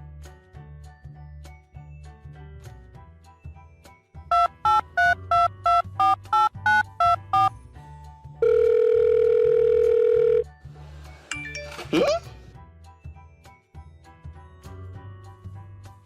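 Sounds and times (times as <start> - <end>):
background music with steady beat: 0.0 - 9.1
telephone keypad dialling tones: 4.3 - 7.5, 8.4 - 10.4
steady dial tone: 8.4 - 10.4.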